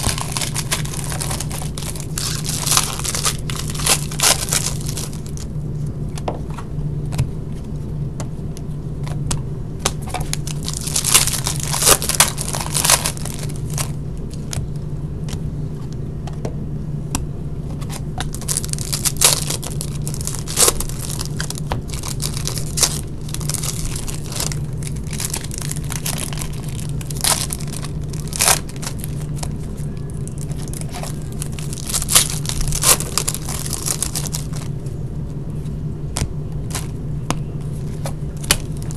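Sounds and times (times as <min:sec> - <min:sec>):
cards being handled: 0:00.0 - 0:05.5
packs being torn open: 0:00.0 - 0:05.5, 0:09.8 - 0:14.8, 0:17.8 - 0:34.7, 0:36.6 - 0:37.0, 0:37.8 - 0:38.9
wrappers crinkling: 0:00.0 - 0:05.5, 0:10.0 - 0:14.8, 0:18.2 - 0:35.0, 0:36.6 - 0:37.0, 0:37.6 - 0:38.9.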